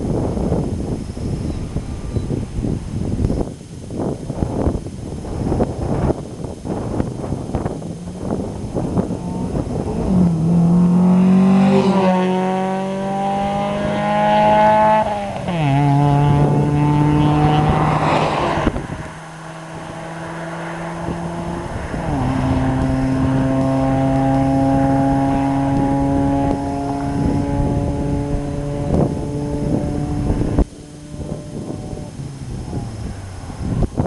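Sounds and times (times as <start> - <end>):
car engine accelerating: 7.6 - 34.0.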